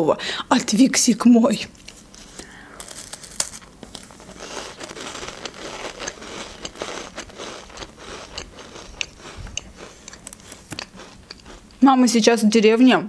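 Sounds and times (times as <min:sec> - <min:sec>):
crunchy cracker chewing: 0:01.9 - 0:11.8.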